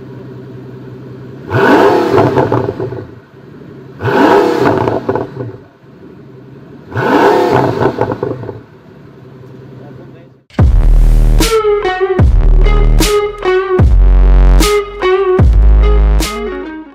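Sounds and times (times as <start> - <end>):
sports car engine revving: 0.0 - 10.0.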